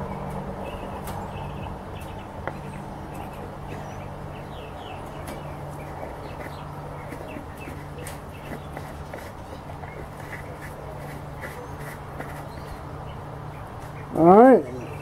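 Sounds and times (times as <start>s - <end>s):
small birds chirping: 0.0s - 15.0s
steady low hum: 0.0s - 15.0s.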